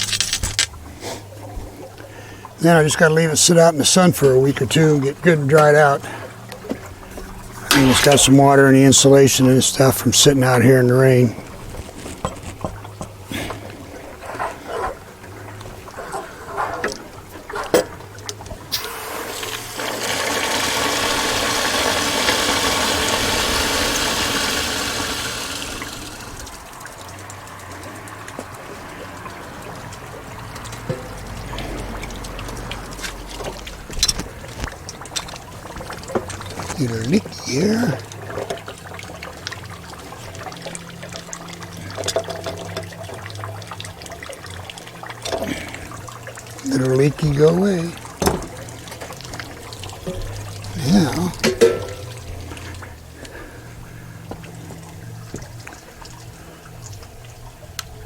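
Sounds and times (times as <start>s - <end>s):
low steady hum: 0.0s - 58.0s
water and air gushing from drain: 0.0s - 58.0s.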